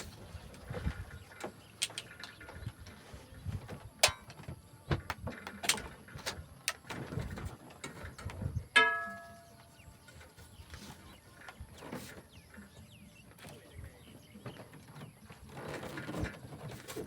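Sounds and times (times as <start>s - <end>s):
sharp ringing strike: 8.8s - 9.6s.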